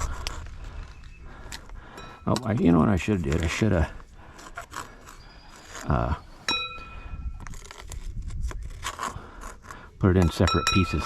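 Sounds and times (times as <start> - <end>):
small clicks and scrapes: 0.0 - 1.8, 2.4 - 6.1, 7.4 - 10.4
metal tools clinking: 5.6 - 7.2, 10.2 - 11.0.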